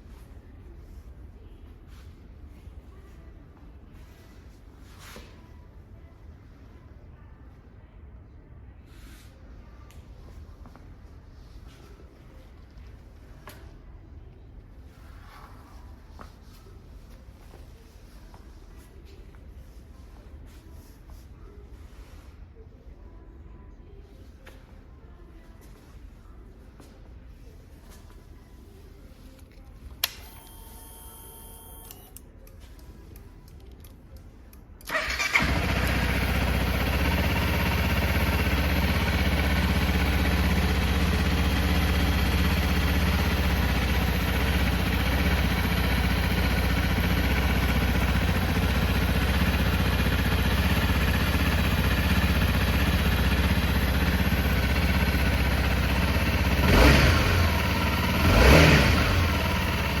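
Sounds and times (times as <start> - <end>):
faint whirring and clicking: 0.0 - 34.9
motorcycle engine idling: 34.9 - 60.0
engine revving: 56.4 - 60.0.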